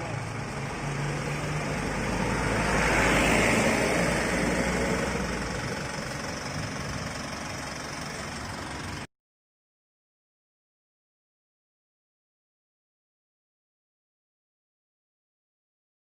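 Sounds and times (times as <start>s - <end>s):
truck engine running: 0.0s - 9.1s.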